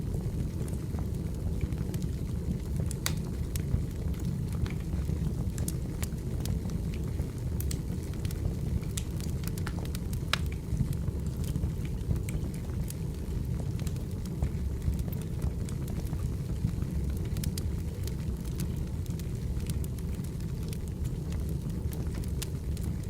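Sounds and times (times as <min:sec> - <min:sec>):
firewood crackling with pops: 0:00.2 - 0:23.0.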